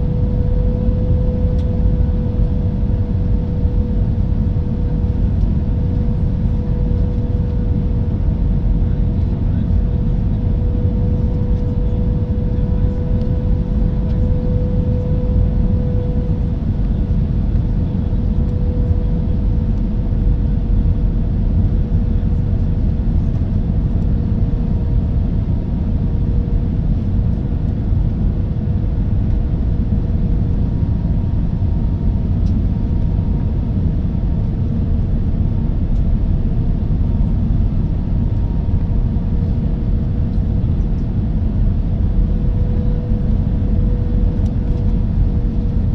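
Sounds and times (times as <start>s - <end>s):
jet engine and airflow rumble: 0.0s - 45.9s
steady whine: 22.3s - 45.9s.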